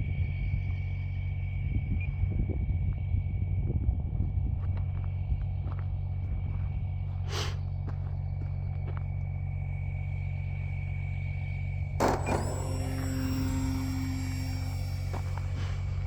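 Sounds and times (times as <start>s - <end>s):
electric motor and propeller whine: 9.2s - 16.0s.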